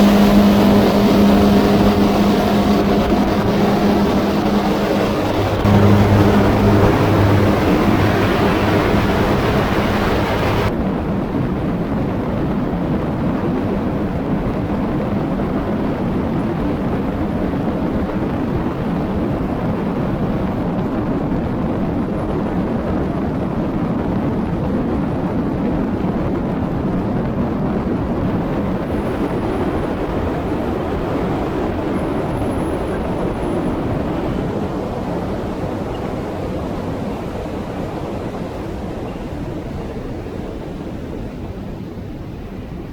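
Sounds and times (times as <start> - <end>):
light aircraft engine and propeller: 0.0 - 10.7
rushing air: 0.0 - 10.7.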